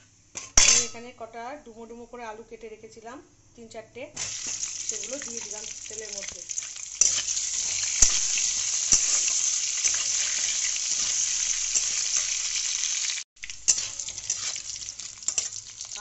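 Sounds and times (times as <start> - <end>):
potatoes sizzling in hot oil: 4.2 - 16.0.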